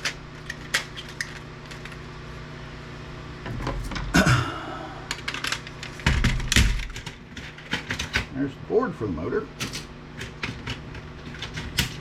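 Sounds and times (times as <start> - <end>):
plastic and metal parts clattering: 5.1 - 8.3, 9.6 - 12.0.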